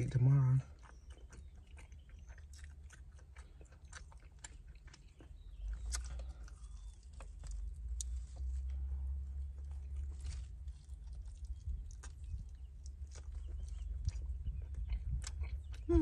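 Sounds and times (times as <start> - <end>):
crunching fried chicken: 0.0 - 16.0
low rumble: 5.4 - 16.0.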